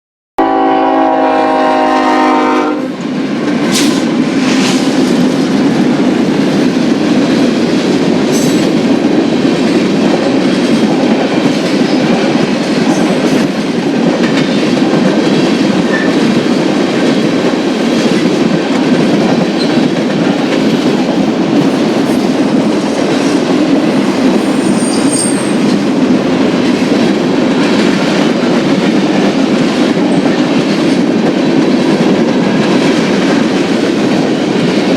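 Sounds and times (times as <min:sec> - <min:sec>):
locomotive horn chord: 0:00.4 - 0:03.0
freight train cars rolling: 0:00.6 - 0:34.9.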